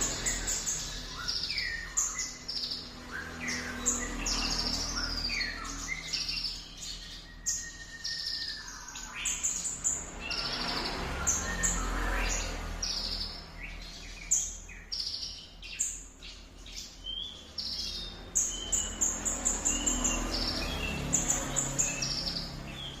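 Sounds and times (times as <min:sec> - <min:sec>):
songbird singing: 0:00.0 - 0:23.0.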